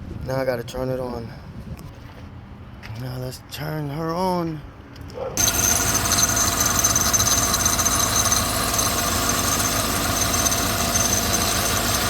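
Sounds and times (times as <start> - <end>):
car engine idling: 5.4 - 12.0
high-pitched belt squeal: 5.4 - 12.0.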